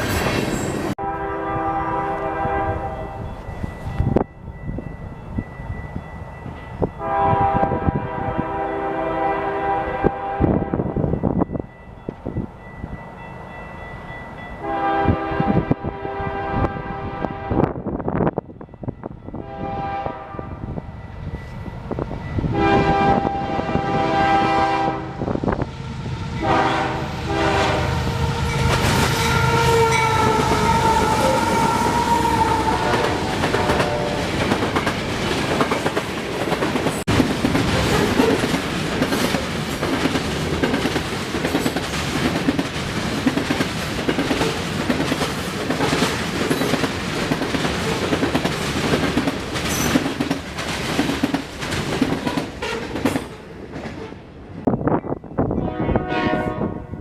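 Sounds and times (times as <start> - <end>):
train passing with rumble: 0.0 - 57.0
train horn blasts: 1.0 - 3.3, 7.0 - 11.0, 14.6 - 17.8, 19.3 - 20.8, 22.5 - 34.5, 55.5 - 57.0
wheels clacking over rail joints: 28.5 - 54.2.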